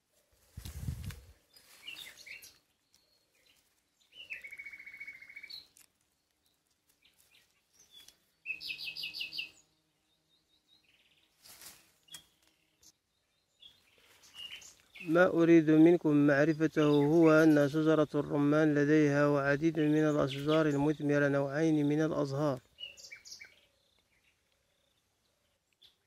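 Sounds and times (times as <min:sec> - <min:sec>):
songbirds chirping and trilling: 0:00.0 - 0:26.0
brief rustle: 0:11.4 - 0:12.6.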